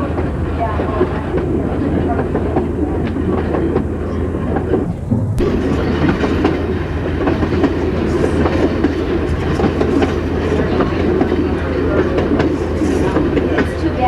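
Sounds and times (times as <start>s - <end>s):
railroad car rumbling: 0.0s - 14.0s
wheels clicking over rail joints: 0.0s - 14.0s.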